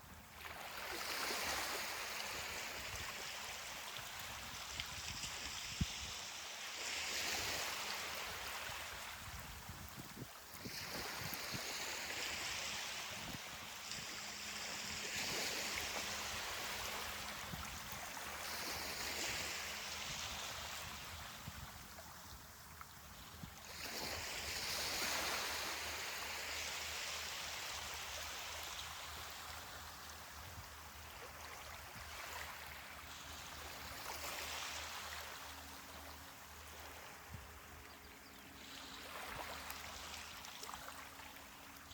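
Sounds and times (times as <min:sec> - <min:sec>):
ocean waves washing up beach: 0:00.3 - 0:09.6, 0:10.4 - 0:22.0, 0:23.6 - 0:30.0.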